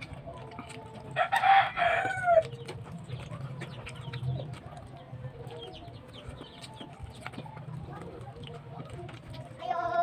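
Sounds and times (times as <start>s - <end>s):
chewing and lip smacks: 0.0s - 10.0s
rooster crowing: 1.2s - 2.5s.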